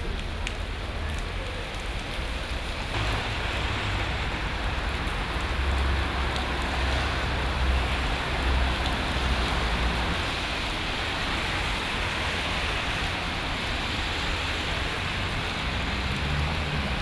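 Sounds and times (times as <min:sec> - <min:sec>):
low traffic rumble: 0:00.0 - 0:17.0
rain on pavement: 0:00.0 - 0:17.0.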